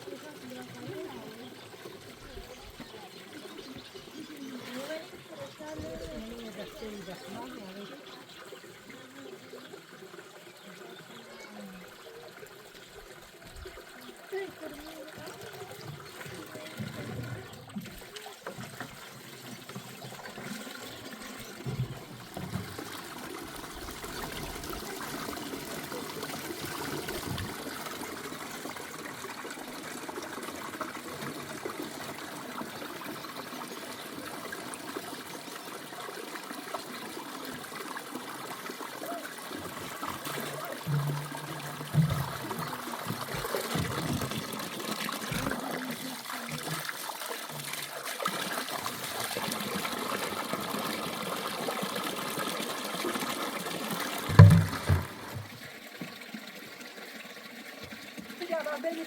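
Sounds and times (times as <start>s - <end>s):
water trickling: 0.0s - 59.0s
brief knocks: 54.3s - 55.6s.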